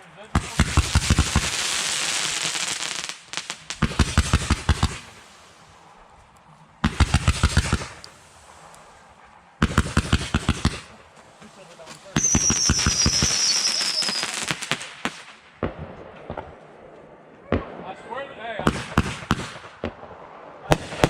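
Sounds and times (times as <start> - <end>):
fireworks bangs: 0.0 - 6.2, 6.8 - 21.0
fireworks hissing crackle: 0.0 - 16.4.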